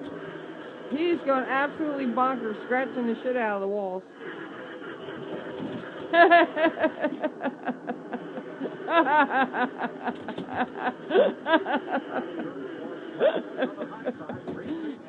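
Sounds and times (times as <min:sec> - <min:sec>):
man laughing: 0:06.2 - 0:15.0.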